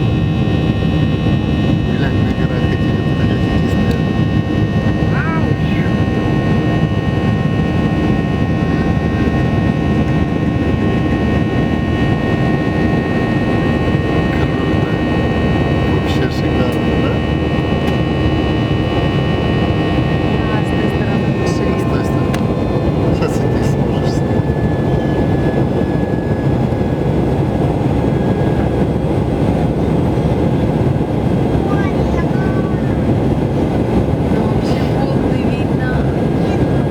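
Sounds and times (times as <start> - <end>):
airliner engines rumbling: 0.0 - 36.9
engine whining tones: 0.0 - 36.9.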